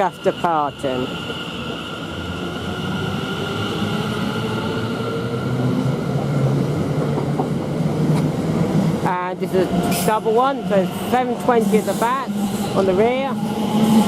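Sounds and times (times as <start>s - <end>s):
electric train pulling out: 8.2s - 14.0s.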